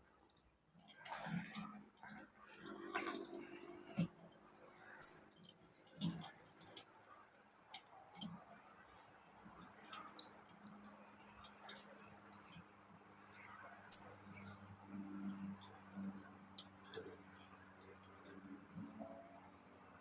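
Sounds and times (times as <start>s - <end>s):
parrots chirping high-pitched: 13.9s - 14.1s.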